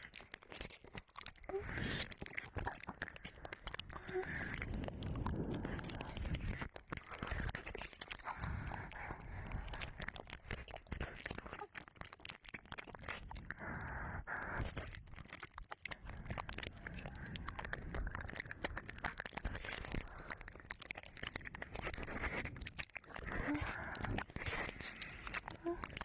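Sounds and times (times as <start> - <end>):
wet mouth clicks and smacks: 0.0 - 26.0
soft breathy noise: 13.5 - 15.0.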